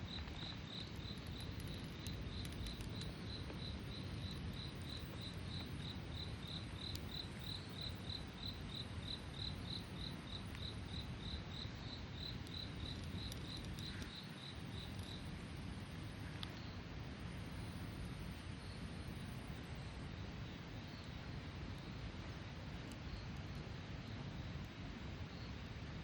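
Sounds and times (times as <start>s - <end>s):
cricket chirping: 0.0s - 25.9s
low steady rumble: 0.0s - 26.0s
faint clicks: 0.1s - 3.7s, 6.8s - 7.6s, 12.2s - 15.3s, 16.2s - 16.7s.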